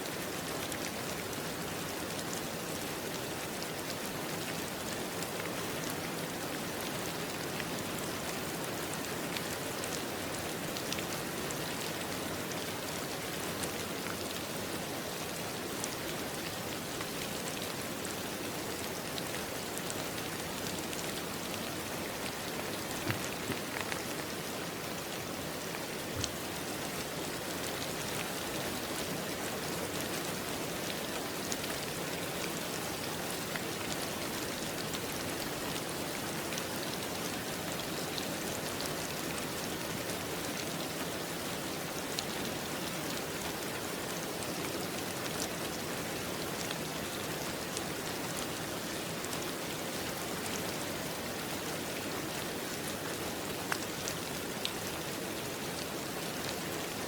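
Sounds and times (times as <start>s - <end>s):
rain hissing on a surface: 0.0s - 57.0s.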